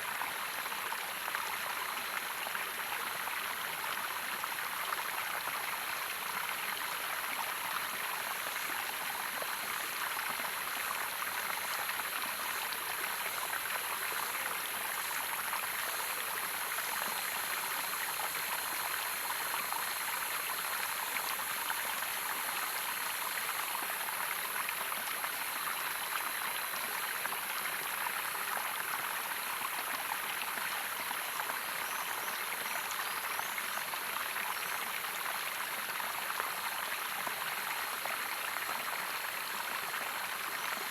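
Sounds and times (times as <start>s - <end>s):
small waterfall rushing: 0.0s - 40.9s.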